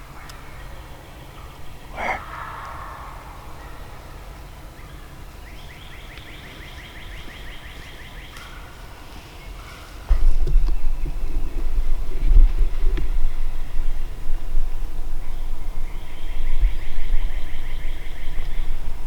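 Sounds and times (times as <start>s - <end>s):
low wind rumble: 0.0s - 19.0s
wild turkey gobble: 1.9s - 4.5s.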